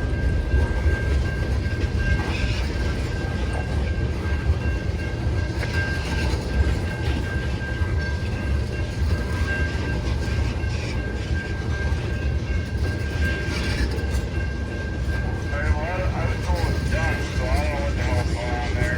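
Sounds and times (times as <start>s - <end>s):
train wheels rumbling on rails: 0.0s - 18.9s.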